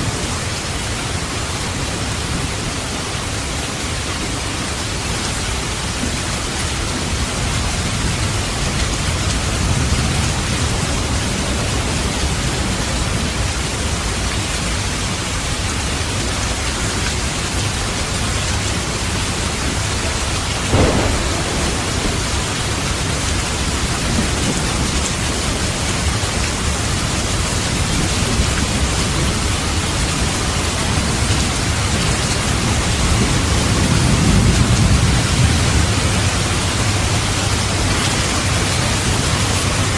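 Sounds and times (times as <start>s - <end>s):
heavy rain: 0.0s - 39.9s
low rolling thunder: 20.2s - 29.6s, 30.2s - 37.2s
short sharp crack: 20.7s - 23.6s.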